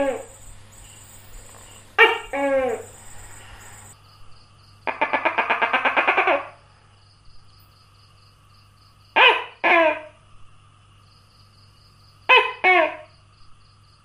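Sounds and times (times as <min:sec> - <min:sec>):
gecko rattling call: 0:00.0 - 0:04.0.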